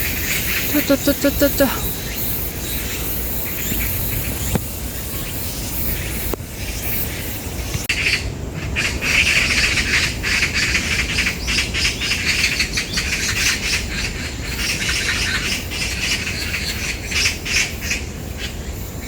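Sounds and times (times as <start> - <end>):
magpies chattering: 0.0 - 7.2.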